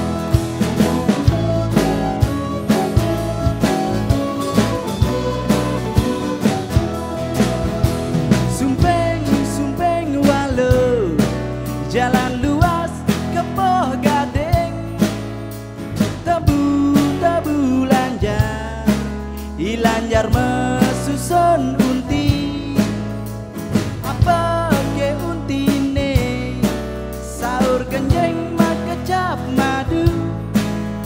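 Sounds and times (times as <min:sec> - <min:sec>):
sliding melody line: 0:00.0 - 0:10.4
steady percussion: 0:00.0 - 0:31.0.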